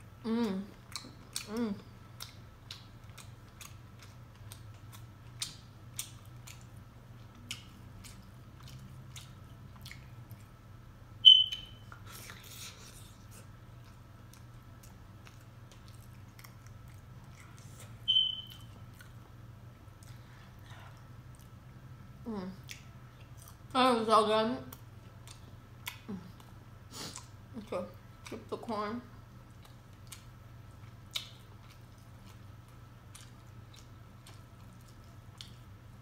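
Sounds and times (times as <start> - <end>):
wet chewing clicks and smacks: 0.8 - 10.6, 13.7 - 21.6, 22.6 - 23.7, 24.7 - 27.4, 29.4 - 35.8
high-pitched squeak-like tones: 11.2 - 11.8, 18.1 - 18.7.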